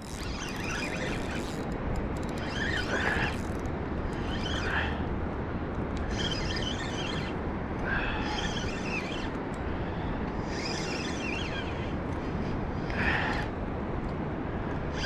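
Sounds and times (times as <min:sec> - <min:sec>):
high wavering sounds: 0:06.0 - 0:07.4, 0:08.0 - 0:09.4, 0:10.4 - 0:12.6.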